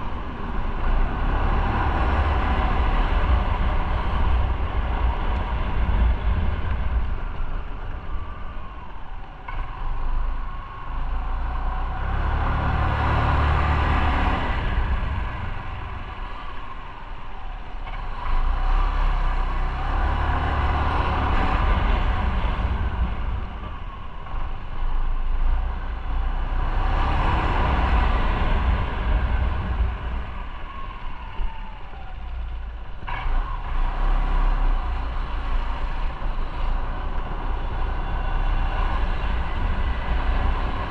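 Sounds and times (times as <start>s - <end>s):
rushing wind noise: 0.0s - 40.9s
motorcycle engine rumble: 27.5s - 33.8s.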